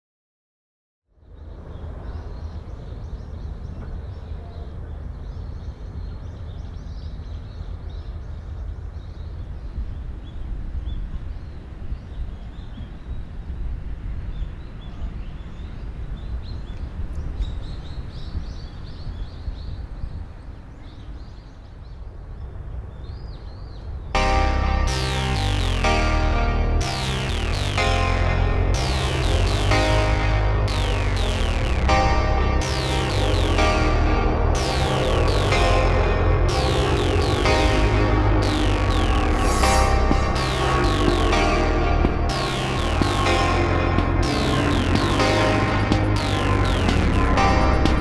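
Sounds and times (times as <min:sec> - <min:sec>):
low rumble: 0:24.2 - 0:48.0.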